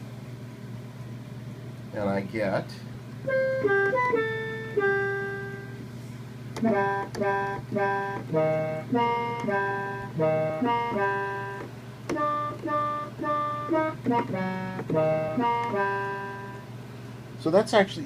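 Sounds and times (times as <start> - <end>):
synthesizer plucky melody: 6.6 - 11.6, 12.2 - 16.7.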